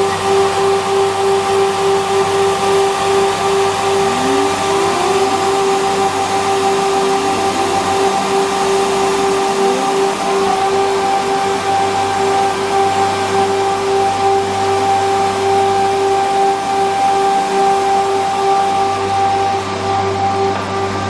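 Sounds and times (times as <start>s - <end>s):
wood moulder cutter whine: 0.0s - 21.0s
faint rising tones: 2.0s - 12.9s.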